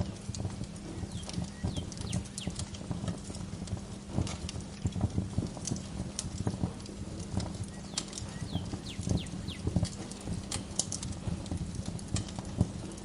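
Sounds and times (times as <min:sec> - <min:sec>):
bird chirps: 0:00.9 - 0:02.7, 0:07.6 - 0:10.7.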